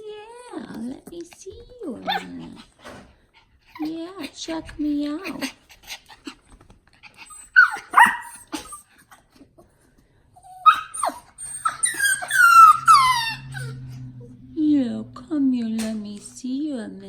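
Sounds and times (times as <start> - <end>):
faint low hum: 0.0 - 17.0
dog whining and yelping: 2.0 - 2.8, 5.2 - 9.6, 10.4 - 14.4.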